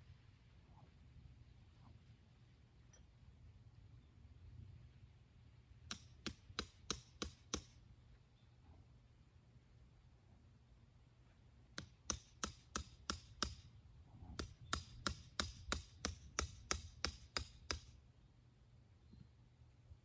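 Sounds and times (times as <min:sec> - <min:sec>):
tool striking hard: 0:11.8 - 0:13.6, 0:14.4 - 0:17.9.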